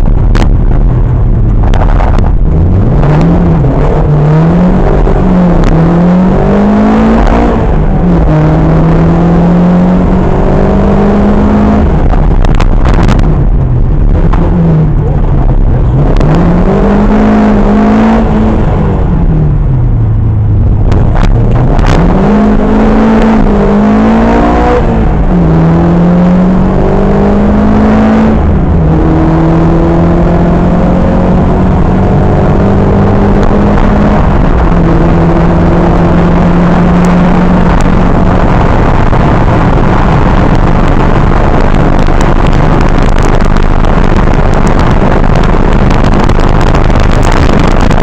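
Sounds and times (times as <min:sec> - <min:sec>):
rally car engine revving: 0:00.0 - 0:48.0
engine exhaust cracks: 0:11.9 - 0:16.3.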